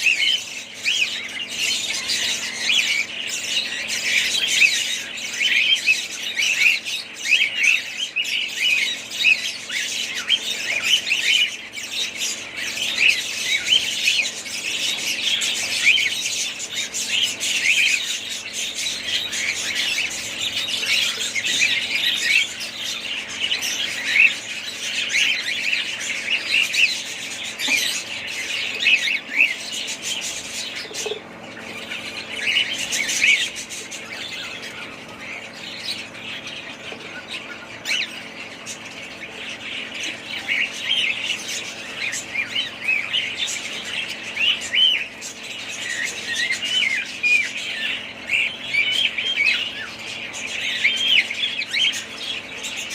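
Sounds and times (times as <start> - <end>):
budgerigars chattering: 0.0 - 52.9.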